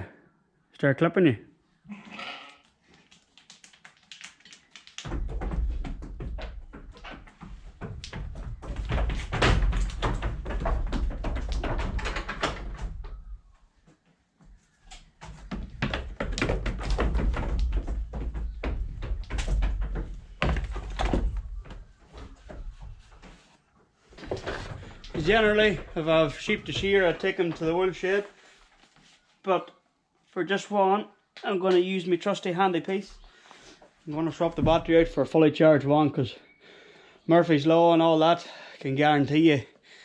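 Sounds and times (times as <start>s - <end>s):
knocks and clattering: 4.9s - 13.3s, 15.2s - 23.5s, 24.2s - 28.0s.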